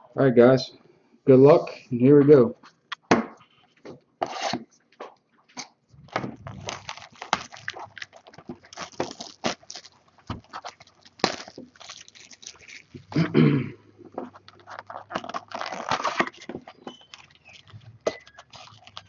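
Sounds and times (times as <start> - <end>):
plastic wrapping crinkling and tearing: 6.0 - 13.4, 14.0 - 19.0.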